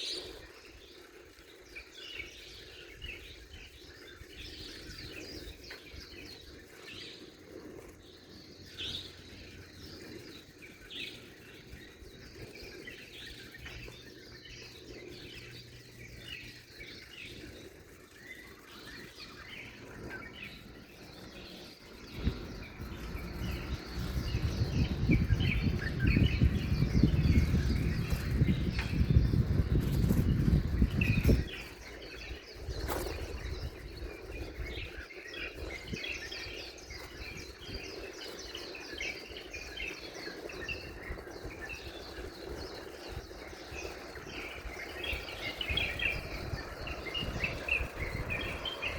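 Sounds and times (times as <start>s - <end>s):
birds chirping: 0.0s - 48.9s
low rumbling noise: 19.5s - 31.9s.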